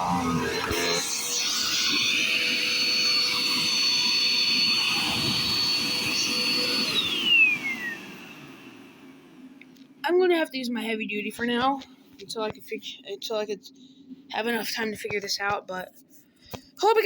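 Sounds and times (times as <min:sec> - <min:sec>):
vacuum cleaner motor whining: 0:00.0 - 0:09.9.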